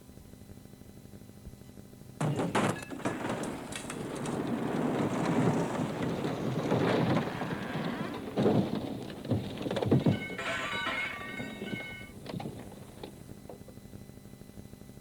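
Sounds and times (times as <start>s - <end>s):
thunder rumbling: 2.2s - 13.4s
heavy rain: 3.0s - 12.2s.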